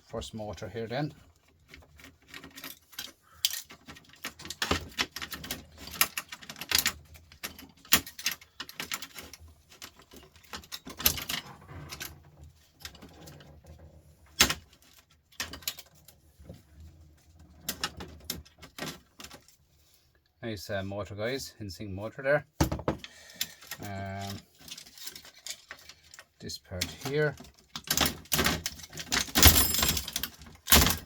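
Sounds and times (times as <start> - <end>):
small metal and plastic parts clattering: 1.1 - 19.6, 22.6 - 31.0.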